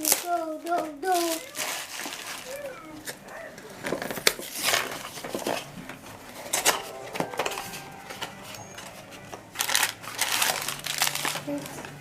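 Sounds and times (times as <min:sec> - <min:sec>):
toy packaging clicks: 0:00.0 - 0:05.7, 0:09.5 - 0:12.0
plastic packaging rustling: 0:00.0 - 0:12.0.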